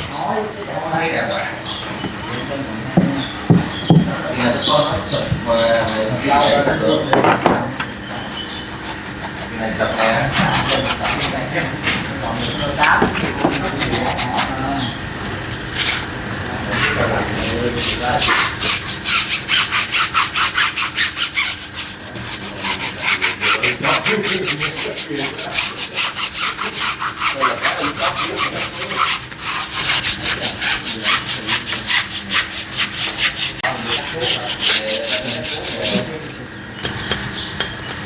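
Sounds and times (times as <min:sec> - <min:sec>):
stiff brush scrubbing: 0:08.0 - 0:38.0.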